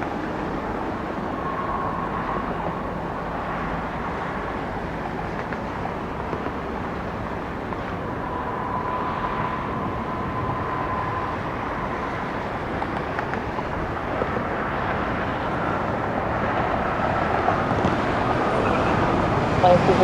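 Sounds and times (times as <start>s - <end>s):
faint high whine: 0.0s - 5.0s, 7.0s - 13.0s
jet engines rumbling: 0.0s - 20.0s.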